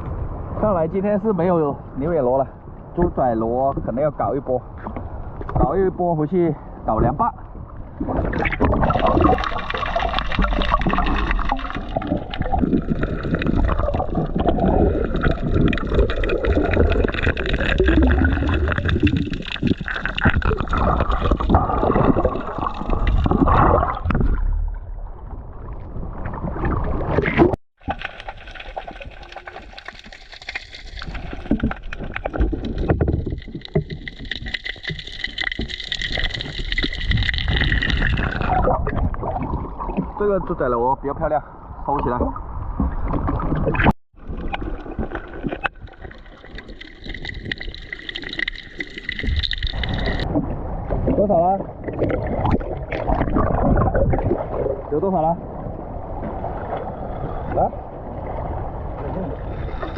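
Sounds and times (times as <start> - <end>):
water gurgling and sloshing: 0.0 - 59.9
small crackles: 9.2 - 23.3, 27.3 - 38.6.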